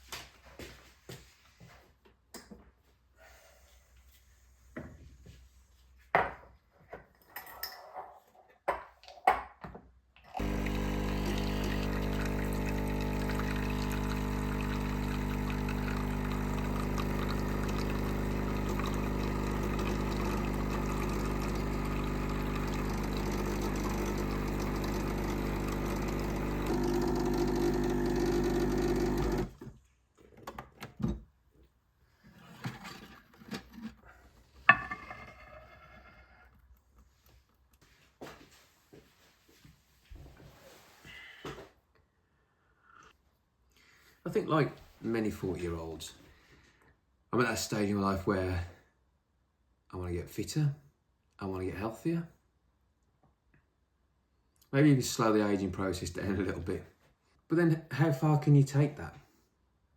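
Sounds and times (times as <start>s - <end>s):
steady machine hum: 10.4s - 29.5s.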